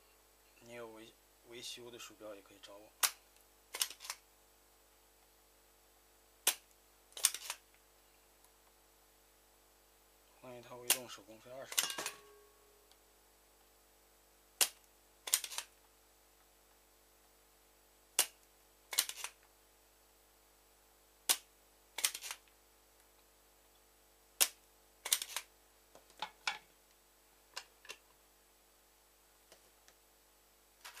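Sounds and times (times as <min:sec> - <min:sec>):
plastic mouse clicks and snaps: 0:06.4 - 0:07.6, 0:14.6 - 0:15.7, 0:18.2 - 0:19.4, 0:21.3 - 0:22.4, 0:24.4 - 0:25.5.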